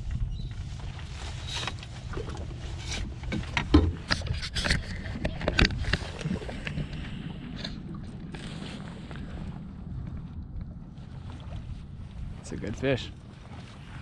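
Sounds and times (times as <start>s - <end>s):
knocks and clatter on boat: 0.0s - 8.2s
steady low rumble: 0.0s - 14.0s
heavy hollow thump: 3.0s - 4.2s.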